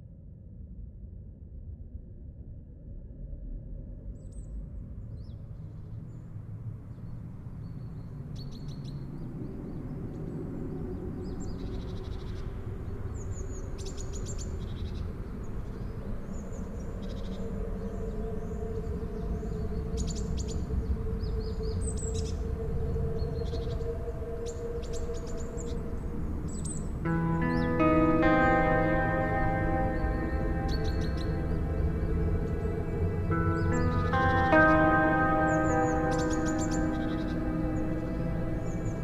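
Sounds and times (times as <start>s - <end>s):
birds chirping and trilling: 23.2s - 39.0s
sustained low tone: 27.0s - 39.0s.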